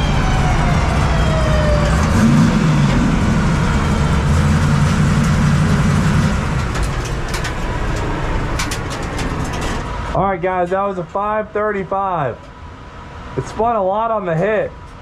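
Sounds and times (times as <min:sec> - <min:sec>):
race car engine: 0:00.0 - 0:10.2
heavy low rumble: 0:00.0 - 0:12.5.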